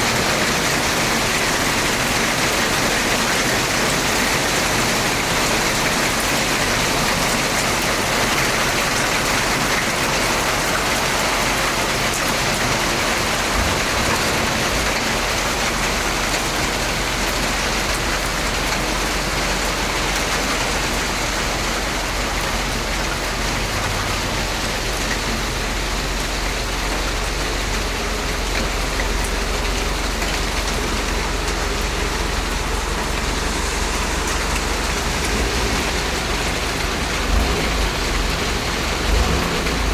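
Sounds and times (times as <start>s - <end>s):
heavy rain falling: 0.0s - 39.9s
low rumble: 30.8s - 39.9s.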